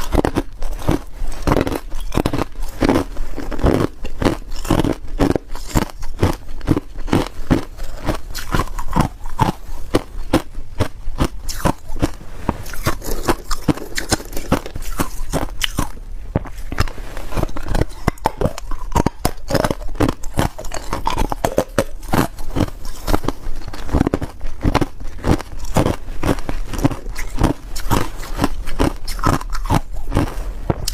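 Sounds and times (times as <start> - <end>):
ice being chewed crunching: 0.0 - 30.9.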